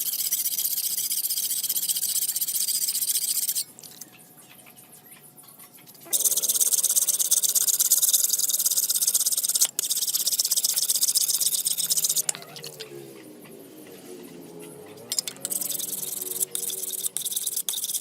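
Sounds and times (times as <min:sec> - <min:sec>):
power tool grinding steel: 0:15.1 - 0:18.0.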